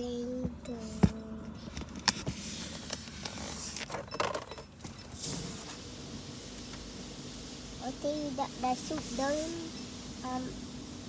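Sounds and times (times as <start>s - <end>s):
car wash spray hissing: 5.3s - 10.9s.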